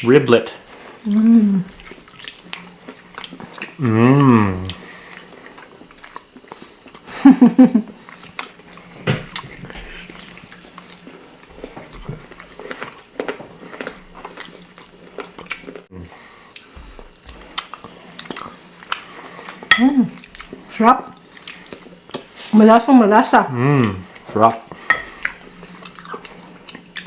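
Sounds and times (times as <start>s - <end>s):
steady low hum: 0.0s - 27.0s
wet chewing and lip smacks: 1.7s - 3.8s, 16.5s - 19.6s
short voiced hum: 3.8s - 4.8s, 15.9s - 16.2s, 23.5s - 24.1s.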